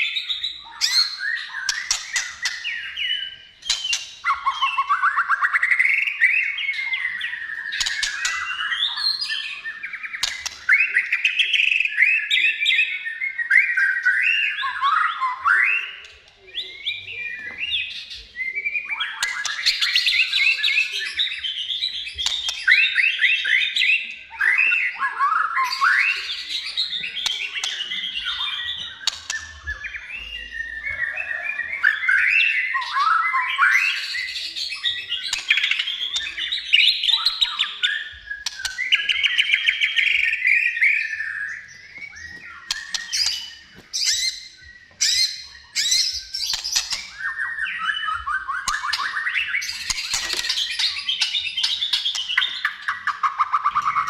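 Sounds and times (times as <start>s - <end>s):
bird singing whistled phrases: 0.0s - 54.0s
sharp clicking bird notes: 1.6s - 2.9s, 3.6s - 4.5s, 7.6s - 8.7s, 10.1s - 11.0s, 27.0s - 30.3s, 35.2s - 40.4s, 42.0s - 54.0s.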